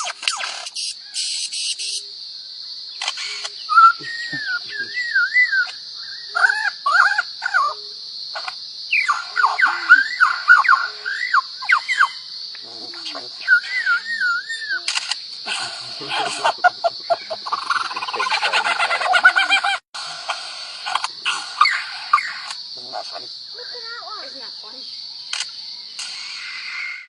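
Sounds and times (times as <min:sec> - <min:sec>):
bird warbling whistles: 0:03.7 - 0:07.8, 0:13.4 - 0:14.9.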